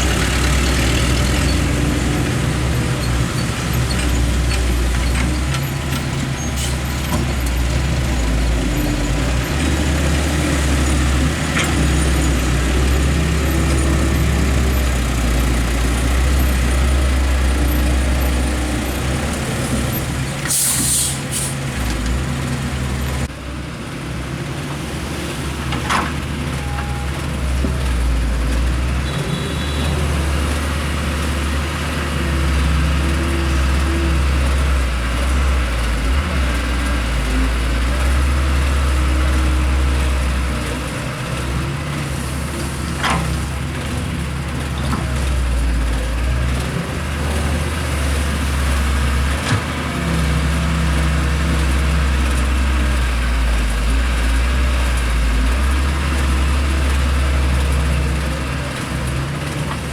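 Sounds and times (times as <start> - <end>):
heavy diesel engines running: 0.0 - 59.9
air release hiss: 20.5 - 21.6.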